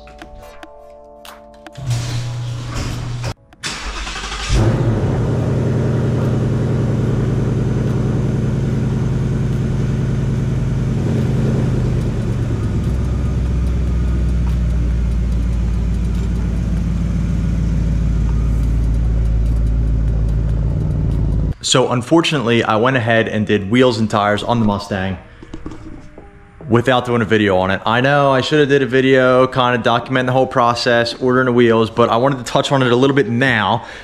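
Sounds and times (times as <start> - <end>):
car engine running at low speed: 4.4 - 21.6.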